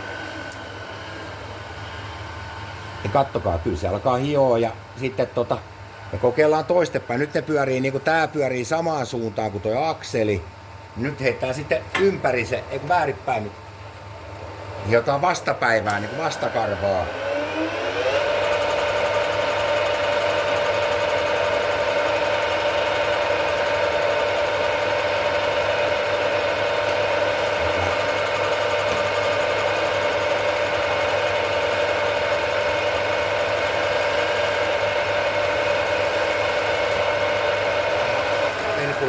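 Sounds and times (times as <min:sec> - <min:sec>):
grinder motor whining: 0:15.4 - 0:39.0.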